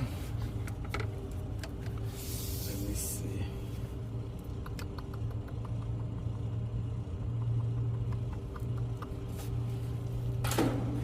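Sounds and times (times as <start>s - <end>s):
low machine hum: 0.0s - 11.0s
handling clicks and taps: 4.5s - 6.4s, 7.3s - 9.3s.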